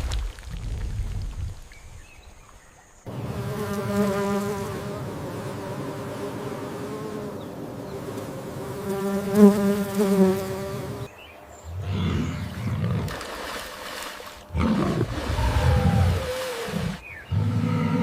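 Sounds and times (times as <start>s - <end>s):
insect buzzing: 3.1s - 11.1s
low rough animal calls: 14.6s - 18.0s.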